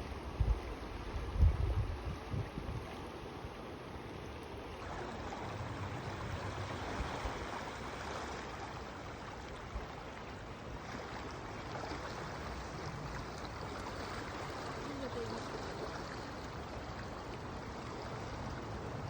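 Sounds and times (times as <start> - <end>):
fast river rushing: 4.8 - 19.0.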